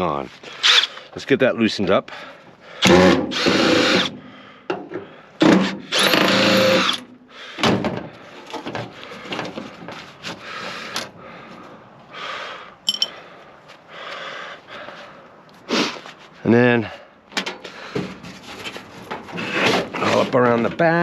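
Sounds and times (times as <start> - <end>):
power drill-driver bursts: 0.6 - 0.9, 2.8 - 4.2, 5.6 - 7.1.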